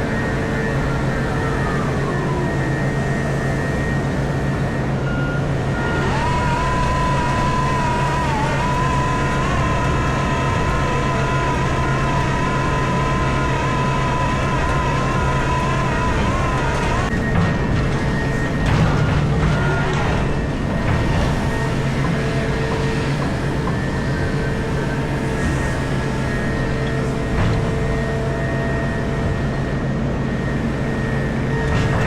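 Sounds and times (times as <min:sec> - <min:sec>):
diesel engine running: 0:00.0 - 0:32.0
hydraulic whine: 0:00.0 - 0:32.0.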